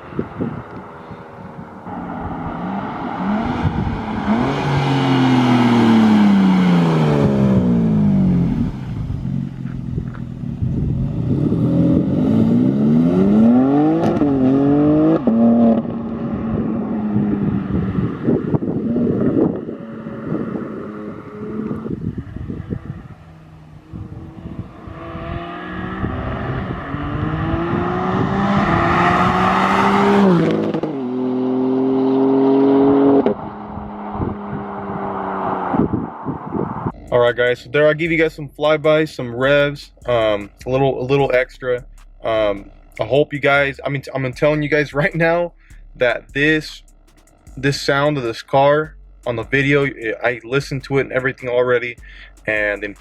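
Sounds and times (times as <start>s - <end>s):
car engine revving with upshifts: 0.0s - 53.0s
car passing by: 0.1s - 9.2s, 23.9s - 36.9s.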